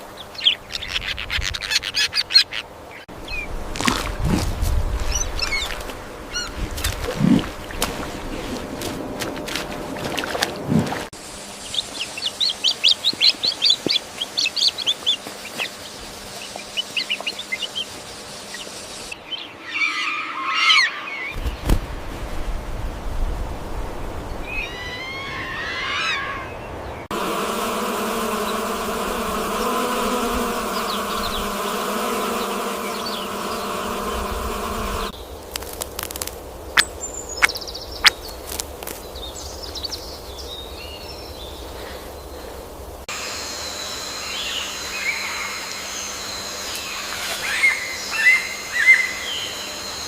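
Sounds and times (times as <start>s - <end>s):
small birds chirping: 0.0s - 3.6s, 5.0s - 6.6s, 11.6s - 21.8s, 28.2s - 42.7s
sweeping bird calls: 5.1s - 6.6s, 11.5s - 21.7s, 24.3s - 27.1s, 29.5s - 35.4s, 36.7s - 42.6s, 43.6s - 50.0s
steady buzz: 27.0s - 36.2s.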